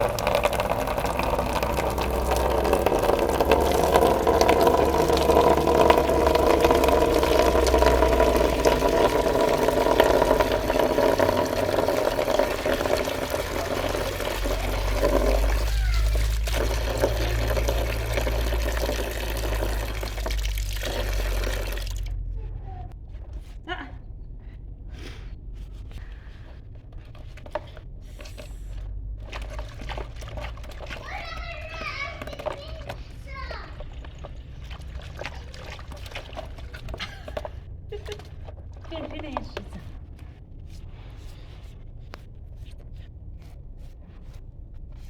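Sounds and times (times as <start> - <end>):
water running: 0.0 - 22.3, 29.1 - 40.0.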